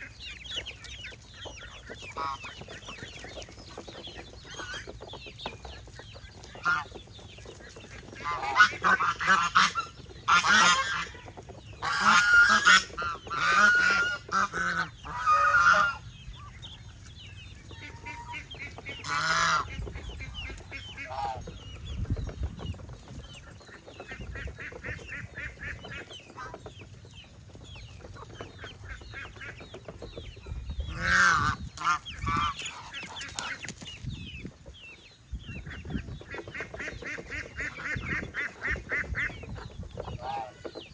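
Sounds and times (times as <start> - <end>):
geese honking: 0.0 - 16.6, 17.6 - 21.6, 30.9 - 33.8, 35.6 - 40.9
poultry flock calling: 0.0 - 40.9.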